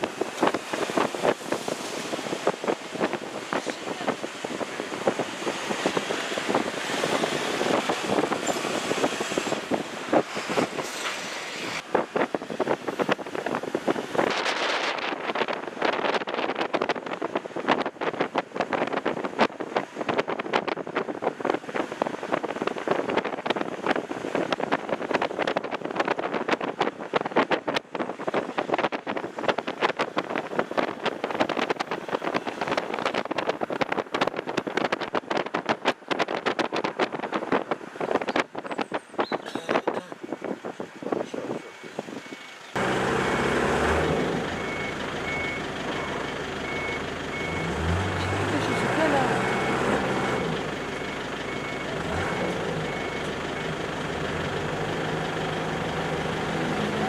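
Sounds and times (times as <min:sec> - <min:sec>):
wind buffeting microphone: 0:00.0 - 0:42.4
engine rumble: 0:37.2 - 0:57.0.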